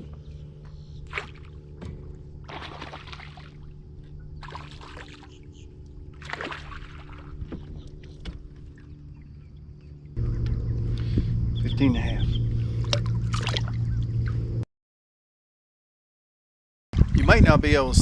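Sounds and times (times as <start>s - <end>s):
low motor hum: 0.0s - 14.7s
fish splashing in water: 1.0s - 1.6s, 2.4s - 3.8s, 4.4s - 7.8s, 12.8s - 14.0s.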